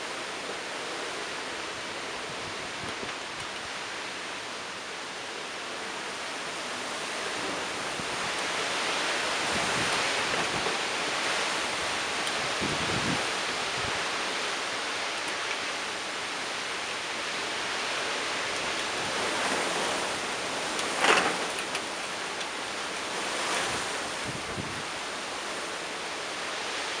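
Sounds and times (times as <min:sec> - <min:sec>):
wind gust: 0:07.3 - 0:14.3
strong wind rushing: 0:11.8 - 0:14.0.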